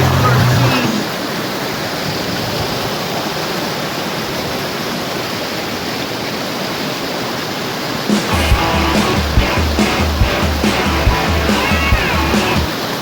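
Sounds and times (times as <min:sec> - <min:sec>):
steady rushing noise: 0:08.0 - 0:12.8.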